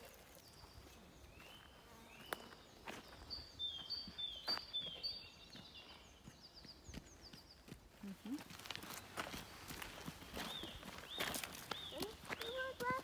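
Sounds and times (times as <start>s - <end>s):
songbird singing: 0.0s - 13.0s
footsteps clicking: 5.6s - 13.0s.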